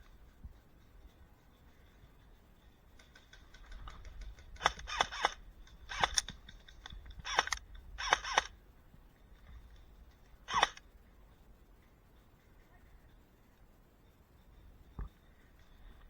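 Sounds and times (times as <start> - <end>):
faint clicks: 0.0 - 8.6
airsoft guns firing bursts: 3.0 - 8.6, 10.5 - 10.8.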